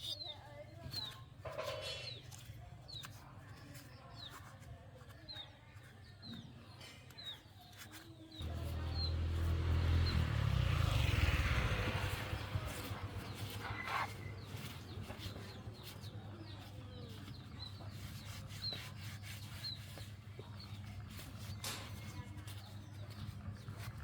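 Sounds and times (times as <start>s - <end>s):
chicks peeping: 12.0s - 21.6s.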